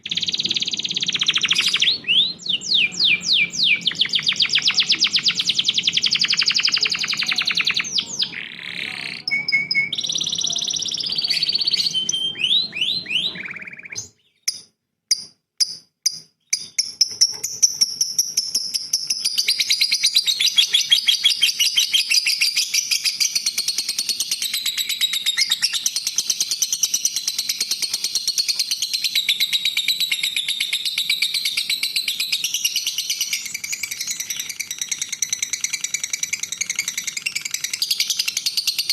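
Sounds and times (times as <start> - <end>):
bird trills and whistles: 0.0 - 15.2, 16.5 - 38.9
sharp bird chips: 0.0 - 23.4
rapid high chattering birdsong: 0.0 - 38.9.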